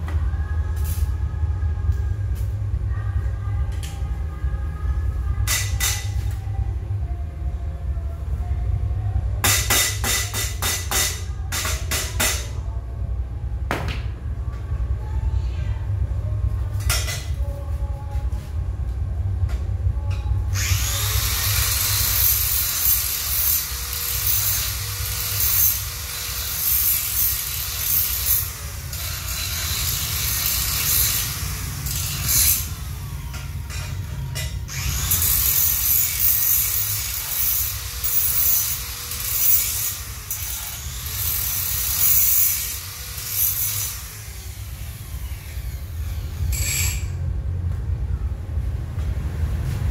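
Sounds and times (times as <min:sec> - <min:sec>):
angle grinder grinding steel: 0:20.6 - 0:33.6, 0:34.7 - 0:47.2.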